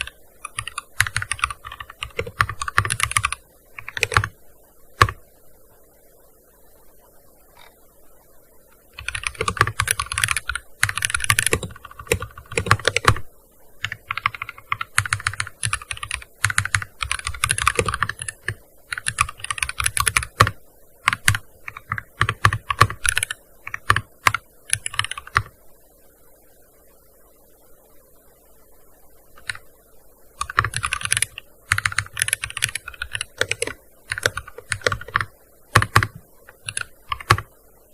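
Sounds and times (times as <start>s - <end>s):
keyboard typing: 0.0s - 4.4s, 5.0s - 5.2s, 8.9s - 25.6s, 29.4s - 29.6s, 30.4s - 37.5s.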